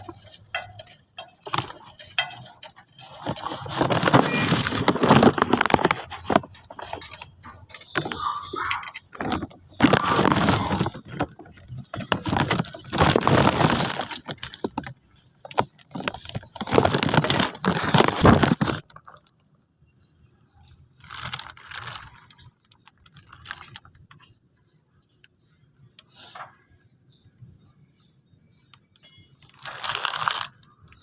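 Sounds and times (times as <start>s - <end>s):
hand tools clattering: 0.0s - 18.8s.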